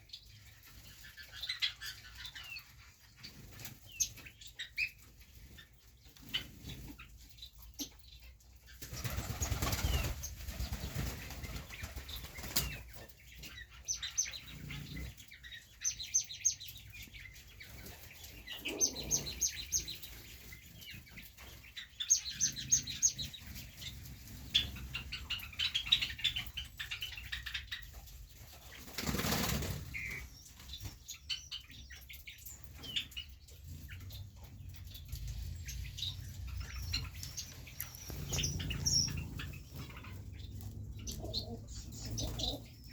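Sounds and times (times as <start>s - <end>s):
birds flapping wings: 8.8s - 12.8s, 28.8s - 30.2s.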